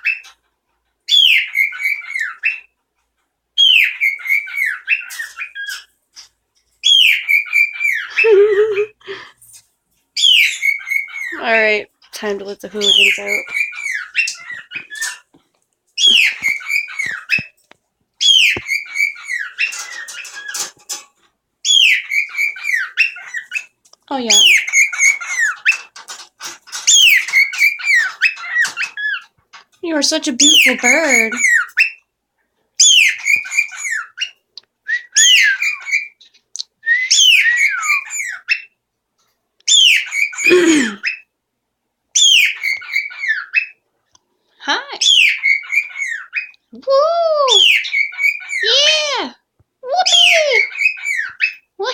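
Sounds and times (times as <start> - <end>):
pet bird whistling: 16.0 - 17.5, 18.2 - 19.8, 34.9 - 36.1, 36.8 - 38.6.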